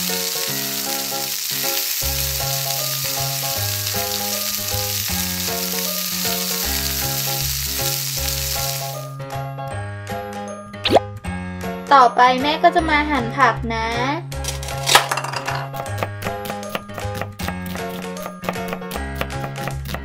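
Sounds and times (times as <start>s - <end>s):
egg sizzling in a pan: 0.0s - 9.1s
children's tune with bass line: 9.4s - 14.5s.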